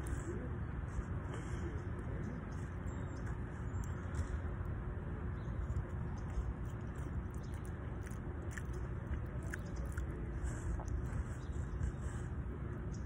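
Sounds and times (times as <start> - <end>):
steady low rumble: 0.0 - 13.0
person chewing: 6.4 - 11.2.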